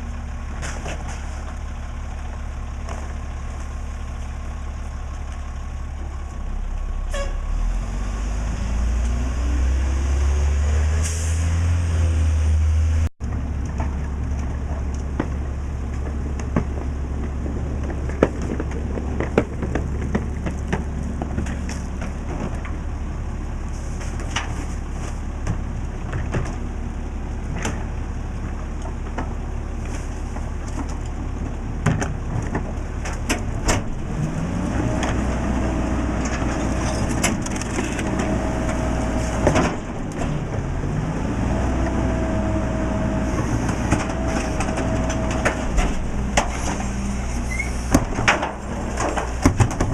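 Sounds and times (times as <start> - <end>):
garbage truck diesel engine: 0.0 - 49.9
trash knocking and clattering: 13.3 - 22.8, 28.9 - 34.1, 43.6 - 49.9.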